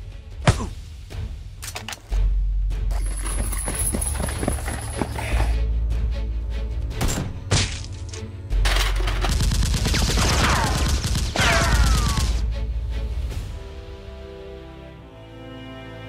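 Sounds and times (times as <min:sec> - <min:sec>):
action background music: 0:00.0 - 0:16.0
rapid gunfire with deep booms: 0:09.2 - 0:12.4.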